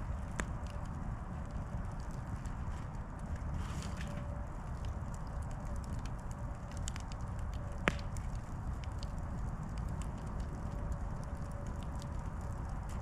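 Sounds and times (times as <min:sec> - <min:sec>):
fire low rumble: 0:00.0 - 0:13.0
wood crackling in campfire: 0:00.0 - 0:13.0.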